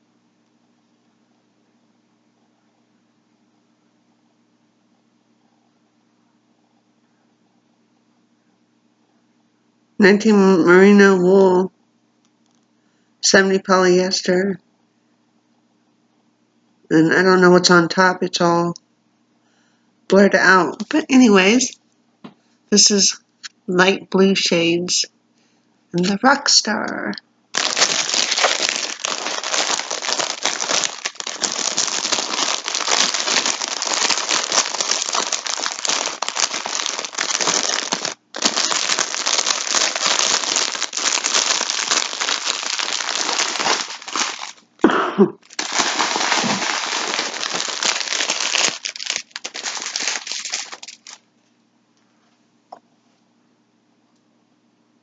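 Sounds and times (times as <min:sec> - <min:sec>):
plastic packaging crinkling: 0:27.5 - 0:51.3.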